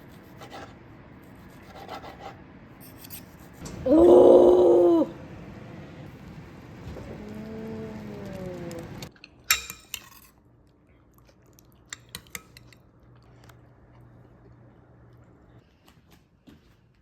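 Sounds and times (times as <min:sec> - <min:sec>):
cutlery and dishes clinking: 0:09.2 - 0:10.4, 0:11.9 - 0:12.8
metal clinking on a bowl: 0:09.2 - 0:10.4, 0:11.9 - 0:12.8.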